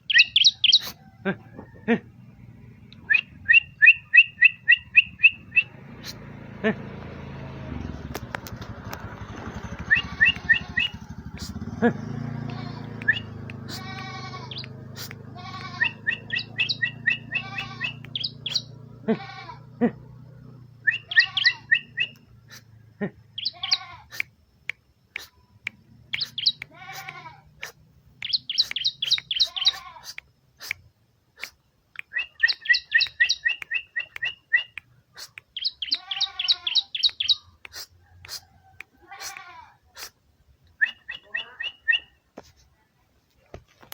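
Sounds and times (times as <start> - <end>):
bird singing: 0.0 - 1.2, 2.2 - 6.3, 7.7 - 19.0, 20.7 - 22.4, 23.2 - 23.9, 25.5 - 26.8, 28.1 - 29.9, 32.0 - 34.8, 35.5 - 37.6, 40.7 - 42.3
low hum: 1.2 - 19.1.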